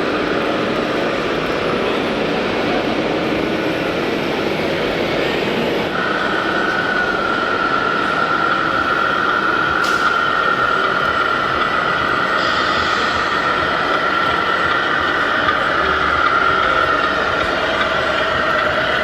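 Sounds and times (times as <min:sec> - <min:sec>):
steady mechanical noise: 0:00.0 - 0:19.0
high motor whine: 0:05.9 - 0:19.0.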